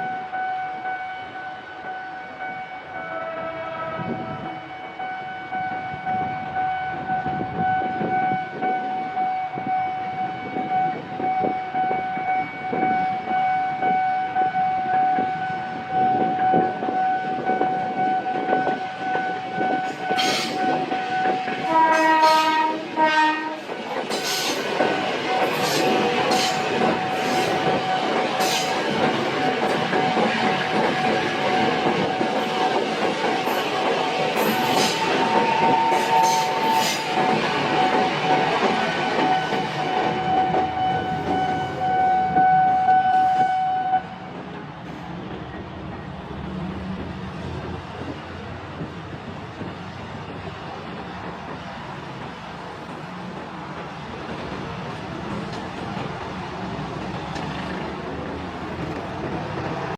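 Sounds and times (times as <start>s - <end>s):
train horn: 0.0s - 23.7s, 25.3s - 28.7s, 34.4s - 44.3s
train whine: 0.0s - 59.9s.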